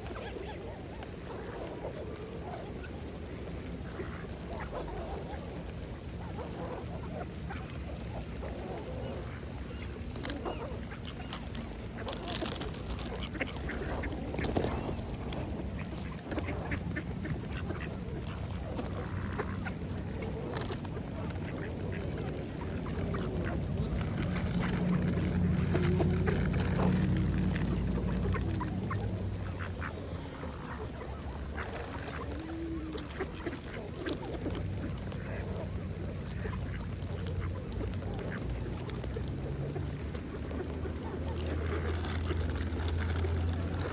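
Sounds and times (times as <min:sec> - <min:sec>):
bills splashing in water: 0:00.0 - 0:43.9
steady low rumble: 0:00.8 - 0:43.9
ducks quacking: 0:09.8 - 0:43.9.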